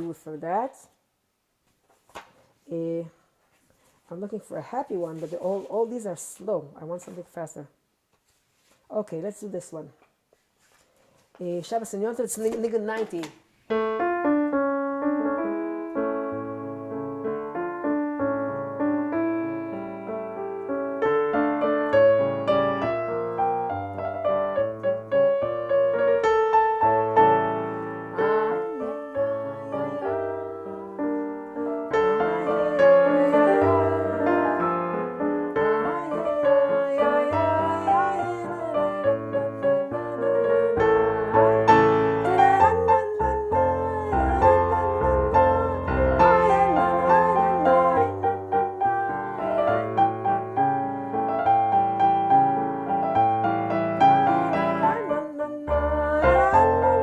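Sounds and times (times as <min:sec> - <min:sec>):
electric keyboard melody: 0:13.7 - 0:57.0.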